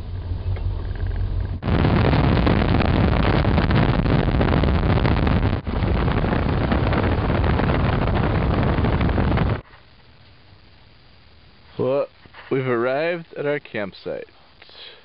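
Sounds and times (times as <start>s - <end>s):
vehicle road noise: 0.0s - 1.6s
wind buffeting microphone: 1.2s - 9.6s.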